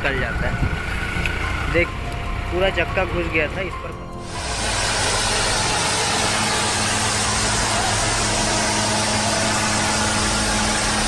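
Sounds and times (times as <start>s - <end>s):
tractor engine running: 0.0s - 11.0s
dense rush of noise: 4.2s - 11.0s.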